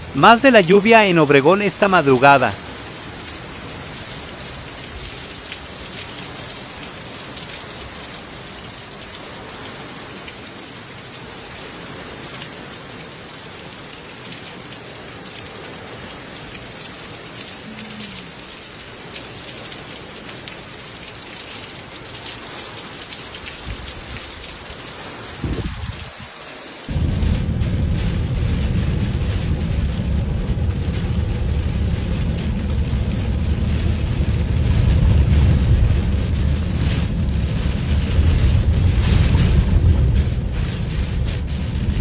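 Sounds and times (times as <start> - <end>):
rain pattering: 0.0 - 42.0
short low rumble: 26.9 - 42.0.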